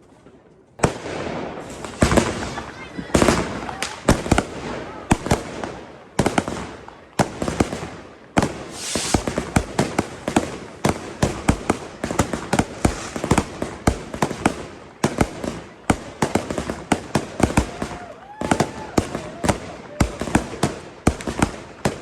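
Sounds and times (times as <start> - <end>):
fireworks and firecrackers banging: 0.0 - 22.0
burst of hiss: 8.6 - 9.6, 12.6 - 13.5.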